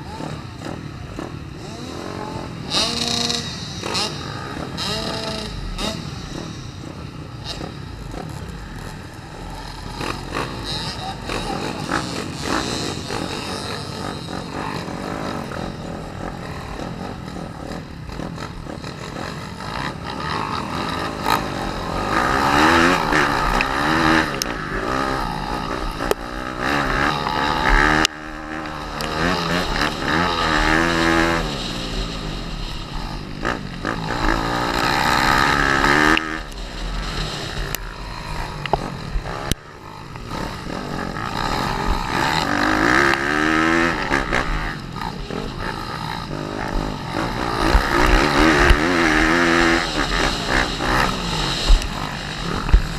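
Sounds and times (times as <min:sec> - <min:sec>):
motorbike engine revving: 0:00.0 - 0:52.9.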